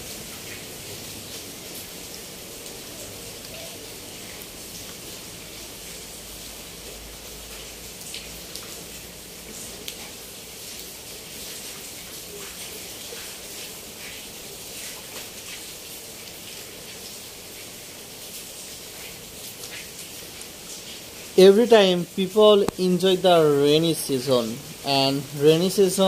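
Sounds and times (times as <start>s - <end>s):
rain on a corrugated roof: 0.0s - 26.0s
raindrop ticks: 1.3s - 6.0s, 6.9s - 8.8s, 9.4s - 16.4s, 18.9s - 26.0s.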